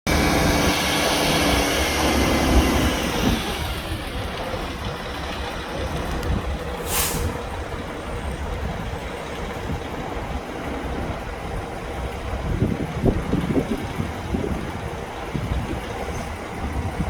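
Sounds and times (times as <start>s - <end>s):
diesel truck engine running: 0.1s - 17.0s
air release hiss: 6.8s - 7.4s.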